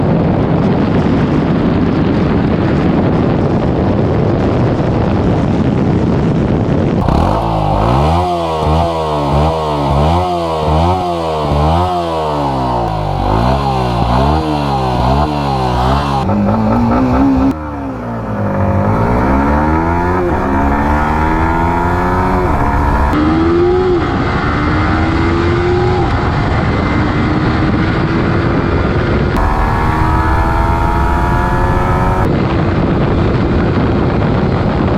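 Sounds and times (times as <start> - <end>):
steady rushing noise: 6.9 - 23.4, 29.3 - 33.4
motorcycle engine revving: 7.0 - 32.3.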